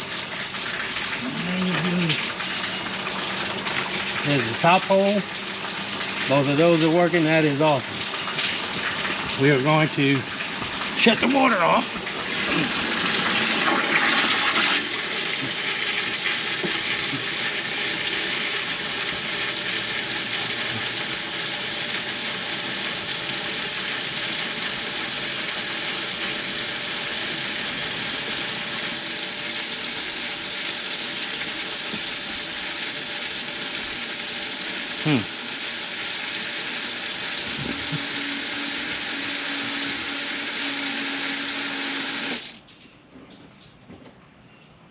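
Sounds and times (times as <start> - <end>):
water gushing from a hose: 0.0 - 43.0
bilge pumps discharging water: 0.0 - 43.8.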